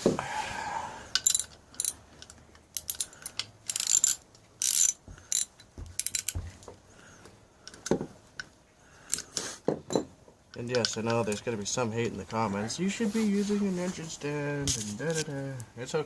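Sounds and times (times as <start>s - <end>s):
ratchet wrench clicking: 1.1s - 6.4s.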